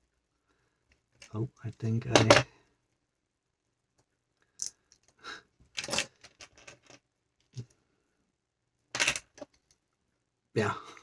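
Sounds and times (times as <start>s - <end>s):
plastic pieces clicking and rattling: 4.6s - 7.0s.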